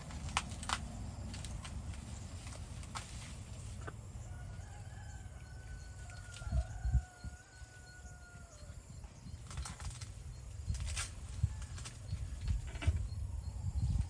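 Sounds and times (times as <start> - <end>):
distant rooster crowing: 4.2 - 9.1.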